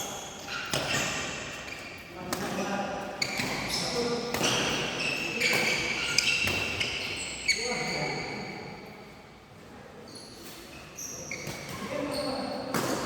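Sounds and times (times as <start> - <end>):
shoes squeaking on court: 3.2 - 8.4, 10.1 - 12.7.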